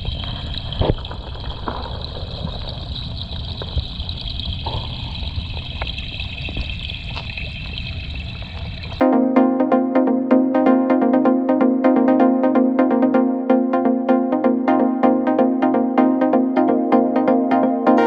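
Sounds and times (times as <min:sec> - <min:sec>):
electronic dance music: 0:09.0 - 0:18.0.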